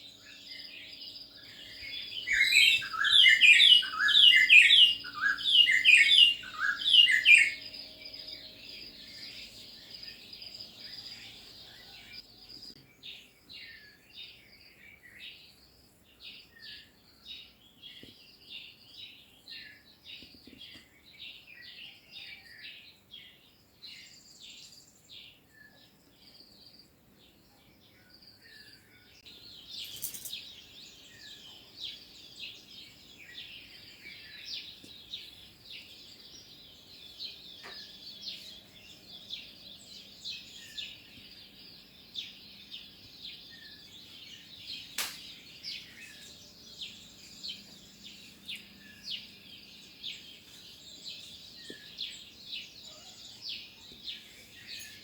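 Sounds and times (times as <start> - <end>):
small birds chirping: 0.0 - 55.0
sharp click: 45.0 - 45.3.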